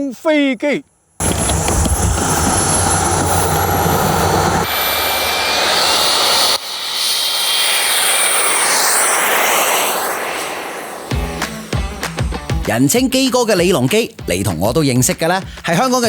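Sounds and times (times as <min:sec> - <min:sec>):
model aeroplane motor whine: 0:01.2 - 0:12.1.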